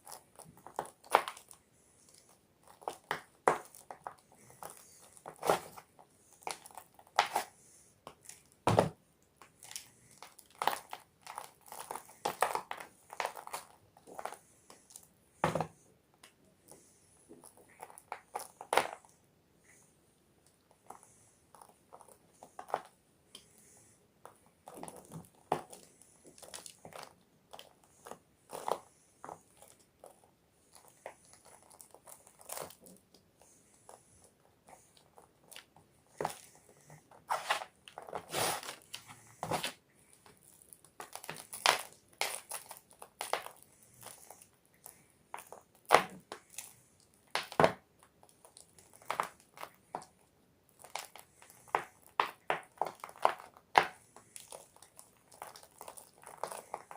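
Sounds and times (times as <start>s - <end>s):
chalk blocks crunching: 9.4s - 15.6s, 34.7s - 39.8s, 40.4s - 47.7s, 50.8s - 56.9s.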